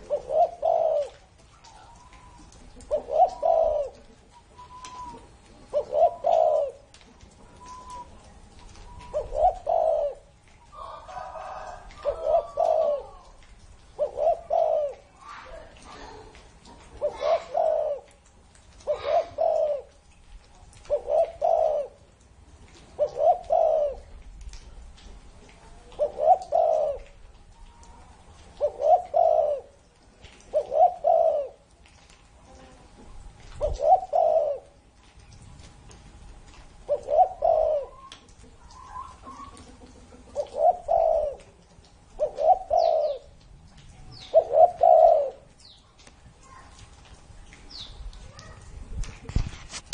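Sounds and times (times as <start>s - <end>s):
dove cooing: 0.0s - 20.0s, 20.8s - 22.2s, 22.9s - 24.2s, 25.8s - 28.0s, 28.6s - 31.7s, 32.5s - 34.8s, 36.8s - 45.7s.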